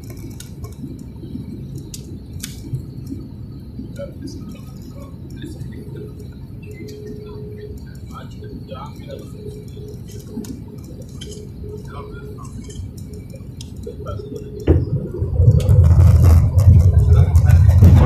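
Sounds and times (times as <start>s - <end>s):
airliner hum: 0.0s - 18.0s
loud low rumble: 14.7s - 18.0s.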